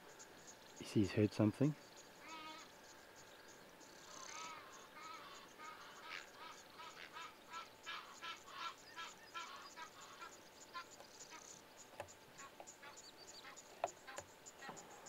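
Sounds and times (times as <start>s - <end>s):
faint bird calls: 0.0s - 15.0s.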